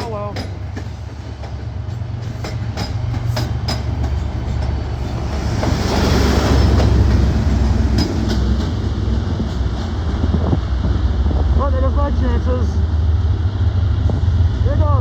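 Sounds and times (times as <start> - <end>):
wheels clacking over rail joints: 0.0 - 10.5
diesel locomotive engine rumble: 0.0 - 15.0.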